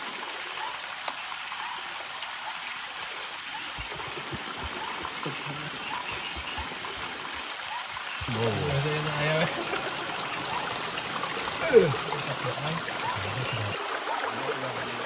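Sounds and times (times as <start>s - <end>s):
rushing water hiss: 0.0s - 15.0s
soft low thumps: 3.8s - 8.4s.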